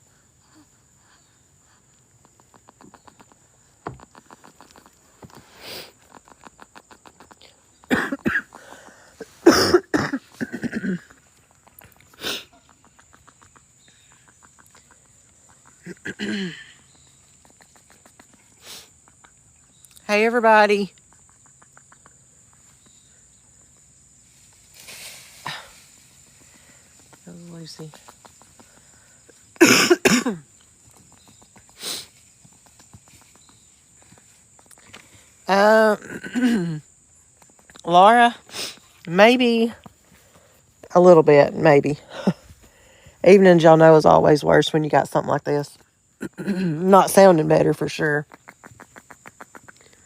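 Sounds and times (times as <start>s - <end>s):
insects clicking: 1.1s - 9.2s, 10.0s - 50.0s
person coughing: 7.9s - 8.5s, 9.4s - 11.1s, 16.0s - 16.7s, 29.6s - 30.4s, 36.0s - 36.8s
monkey hissing call and squeak: 17.4s - 19.0s.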